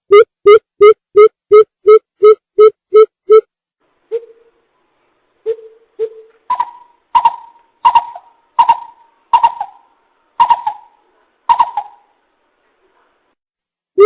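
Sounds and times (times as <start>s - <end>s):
coucal hooting call: 5.4s - 12.2s.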